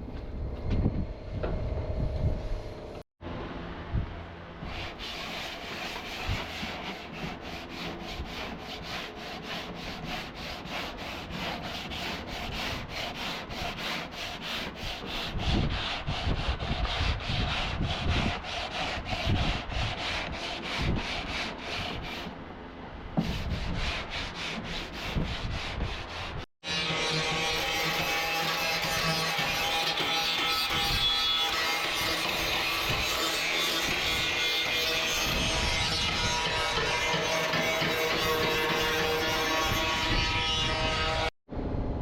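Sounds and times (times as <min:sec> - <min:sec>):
hand sanding metal bodywork: 0:04.6 - 0:22.4, 0:23.2 - 0:41.3.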